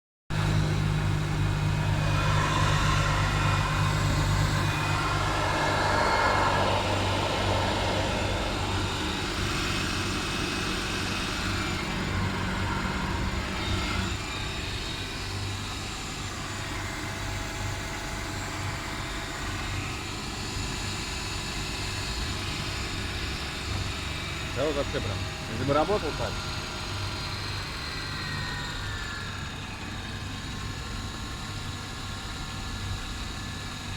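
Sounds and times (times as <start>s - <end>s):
car engine idling: 0.3s - 18.0s.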